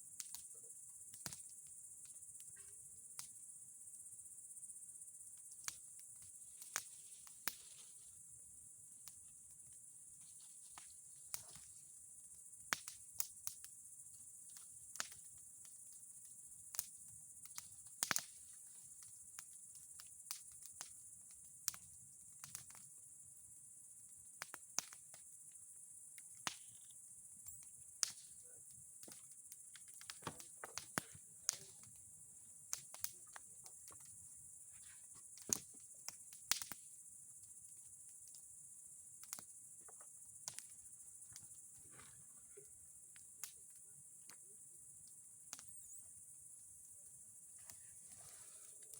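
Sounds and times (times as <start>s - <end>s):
bonfire crackling and popping: 0.1s - 3.5s, 5.0s - 48.9s
fire hissing: 5.4s - 21.1s, 27.5s - 36.8s, 39.2s - 46.3s, 47.3s - 48.9s.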